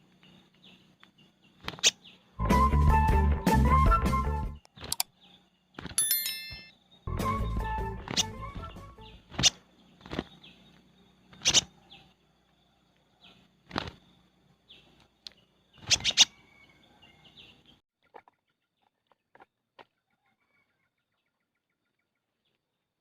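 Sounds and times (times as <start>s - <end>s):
bird sharp short calls: 11.3s - 11.8s.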